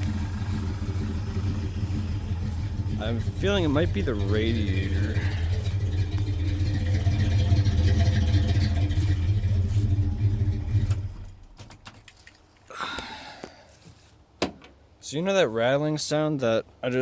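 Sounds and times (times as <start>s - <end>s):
truck engine idling: 0.0s - 11.6s.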